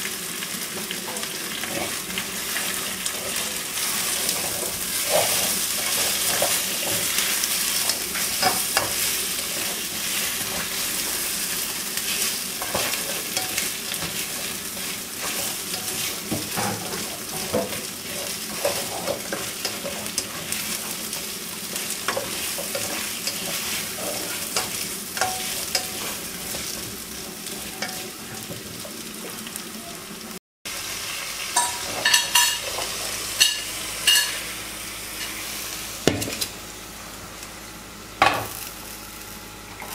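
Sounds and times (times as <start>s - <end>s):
chicken wings sizzling in a pan: 0.0s - 39.9s
utensil scraping a pan: 1.1s - 11.4s, 12.0s - 28.8s
utensil clinking against a pan: 12.6s - 14.2s, 21.7s - 26.8s, 27.6s - 28.1s, 31.6s - 32.8s, 33.4s - 34.4s.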